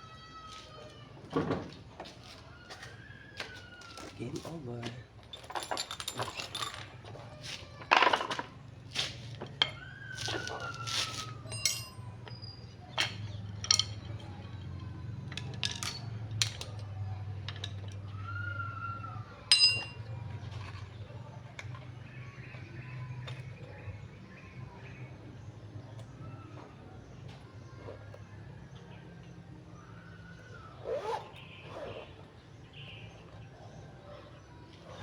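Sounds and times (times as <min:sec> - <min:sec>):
metallic clinks and taps: 0:11.5 - 0:12.4, 0:13.0 - 0:14.3, 0:19.5 - 0:20.0.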